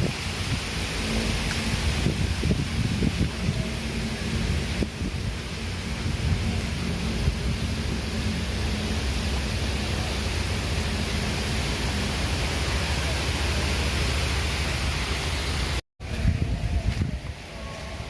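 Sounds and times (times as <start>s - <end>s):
strong wind buffeting microphone: 0.0s - 18.0s.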